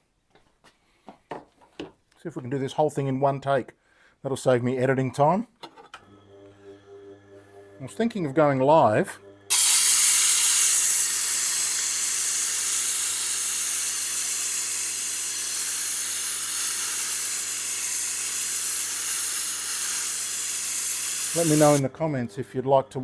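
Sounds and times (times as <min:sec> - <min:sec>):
motor humming: 0:09.4 - 0:21.8
knife grinding on a wheel: 0:09.5 - 0:21.8.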